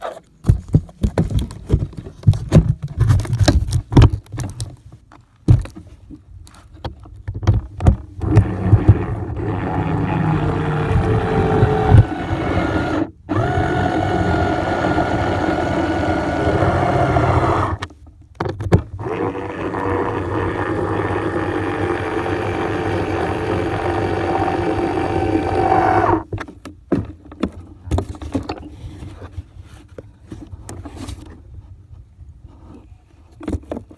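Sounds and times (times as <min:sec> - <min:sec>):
model plane motor whining: 0:08.2 - 0:17.9, 0:19.0 - 0:26.2.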